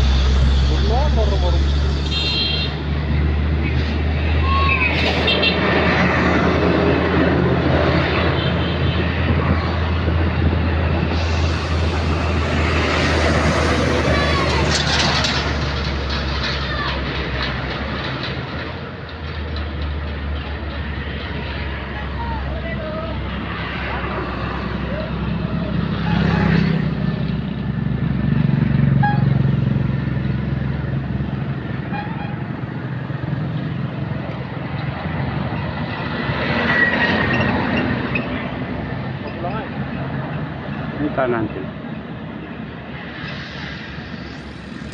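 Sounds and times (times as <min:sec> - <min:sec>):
diesel engine running: 0:00.0 - 0:36.4, 0:42.2 - 0:44.9
thin high whine: 0:10.8 - 0:15.6.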